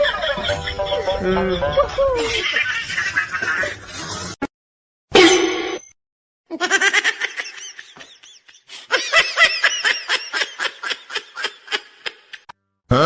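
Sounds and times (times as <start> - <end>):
high-pitched laughter: 0.0 - 3.9.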